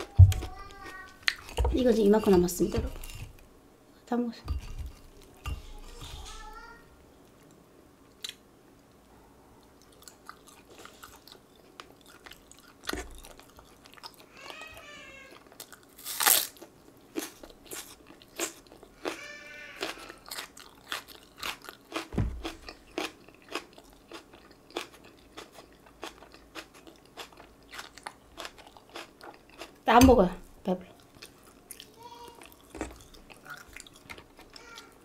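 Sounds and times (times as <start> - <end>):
crisp crunching while chewing: 15.4 - 19.2, 19.8 - 29.8.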